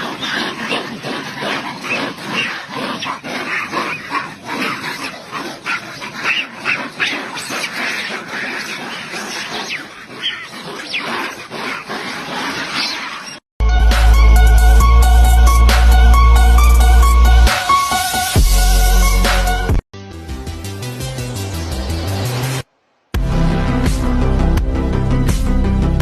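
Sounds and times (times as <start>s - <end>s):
animals calling: 0.0s - 13.5s
high-pitched animal cries: 1.4s - 13.4s.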